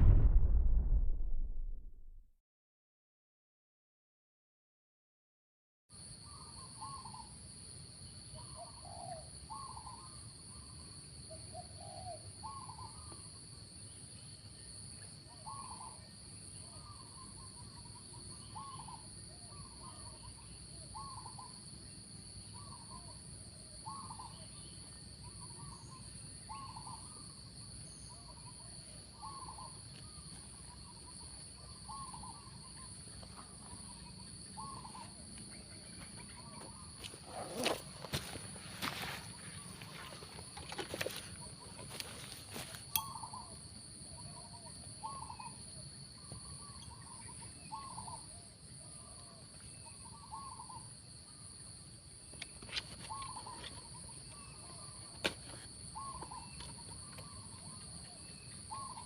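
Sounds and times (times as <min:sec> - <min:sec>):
doves cooing: 0:35.9 - 0:43.4.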